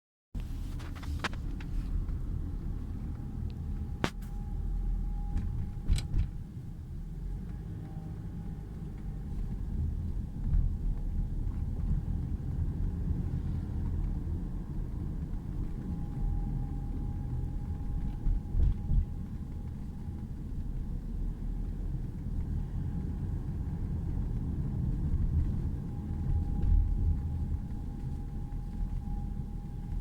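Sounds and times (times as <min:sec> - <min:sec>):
car exhaust low rumble: 0:00.4 - 0:30.0
faint thin whine: 0:02.8 - 0:06.5.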